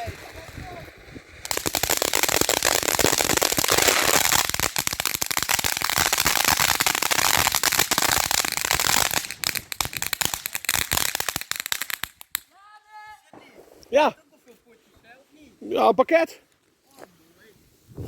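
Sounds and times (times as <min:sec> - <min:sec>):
firework crackling: 0:00.0 - 0:12.5.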